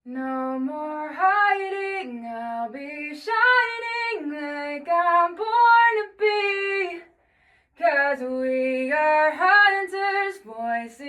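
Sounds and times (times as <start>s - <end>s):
woman singing a cappella: 0.0s - 11.0s
quick breath: 7.1s - 7.8s.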